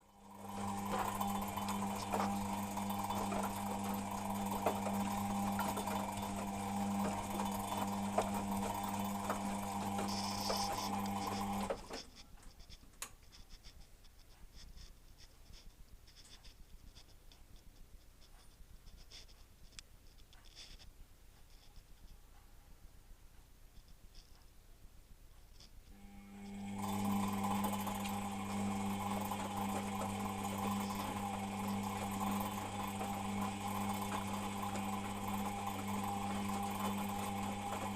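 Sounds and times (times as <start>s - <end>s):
washing machine motor humming: 0.0s - 12.6s, 25.9s - 37.9s.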